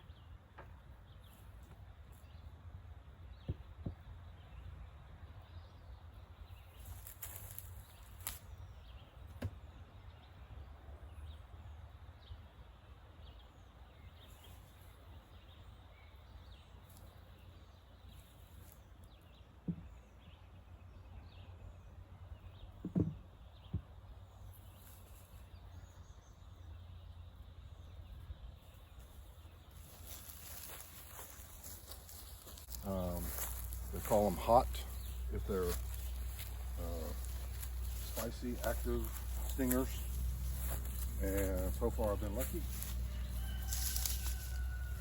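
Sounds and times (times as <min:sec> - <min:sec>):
sharp knocks: 0:22.8 - 0:23.9
steady low rumble: 0:29.8 - 0:44.4.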